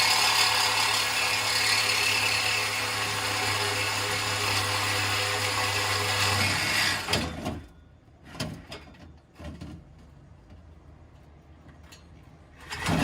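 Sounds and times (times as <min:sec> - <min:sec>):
power tool running: 0:00.0 - 0:07.2.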